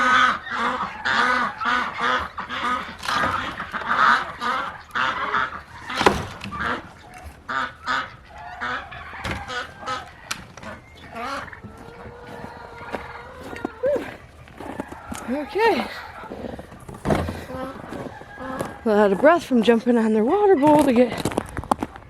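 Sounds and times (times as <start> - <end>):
poultry honking calls: 0.0 - 21.1.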